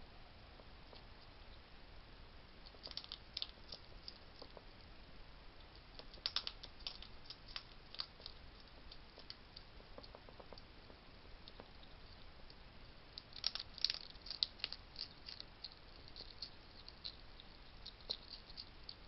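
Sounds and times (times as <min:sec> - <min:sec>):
hedgehogs crunching dry food: 0:02.6 - 0:04.7, 0:05.7 - 0:10.7, 0:11.4 - 0:19.0.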